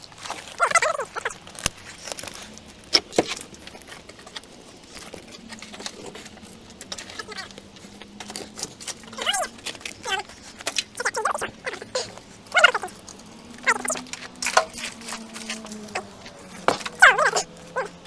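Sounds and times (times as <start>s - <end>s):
faint voices: 0.0s - 18.0s
person straining vocal sound: 11.0s - 12.9s, 16.8s - 18.0s
hard objects knocking and clattering: 12.9s - 18.0s.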